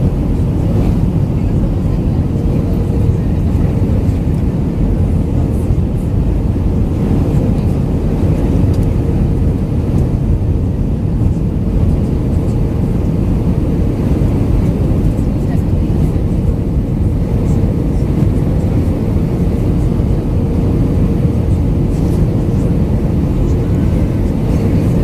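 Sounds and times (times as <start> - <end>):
airplane cabin engine rumble: 0.0 - 25.0.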